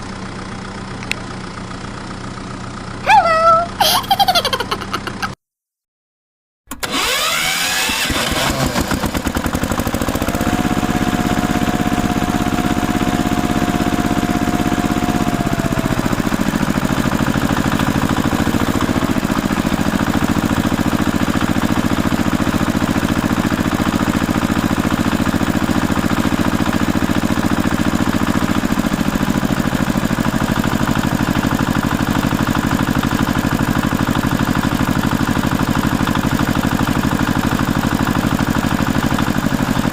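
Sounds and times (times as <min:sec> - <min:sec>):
engine running with fast pulse: 0:00.0 - 0:05.4, 0:06.8 - 0:39.9.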